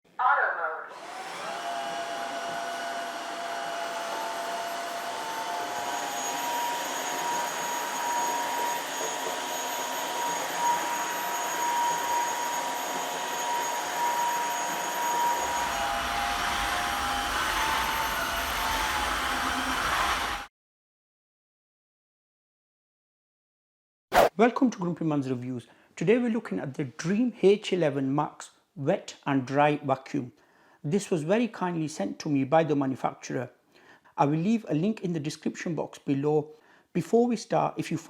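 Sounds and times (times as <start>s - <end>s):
floor cleaner motor whine: 0.9s - 20.5s.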